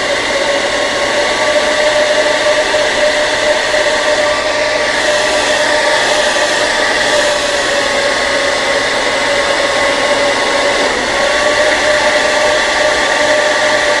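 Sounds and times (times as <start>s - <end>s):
hair dryer running: 0.0s - 14.0s.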